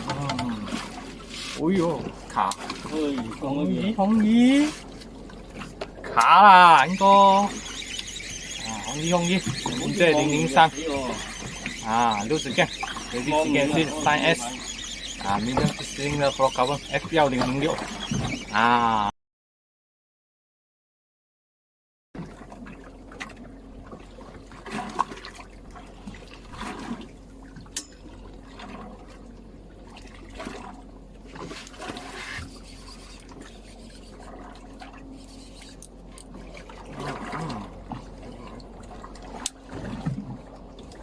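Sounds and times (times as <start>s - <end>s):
water sloshing and trickling: 0.0s - 18.8s, 22.2s - 41.0s
steady low hum: 0.0s - 19.1s.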